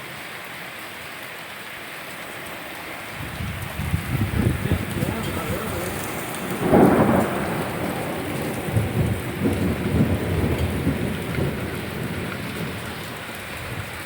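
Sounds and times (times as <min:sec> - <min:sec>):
hailstones clattering: 0:02.2 - 0:14.0.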